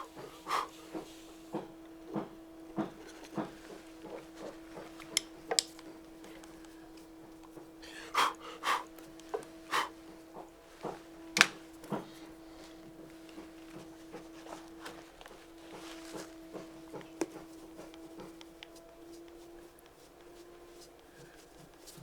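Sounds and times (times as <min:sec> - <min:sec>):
hand tools tapping and scraping wood: 0:00.0 - 0:22.0
steady low hum: 0:00.0 - 0:22.0.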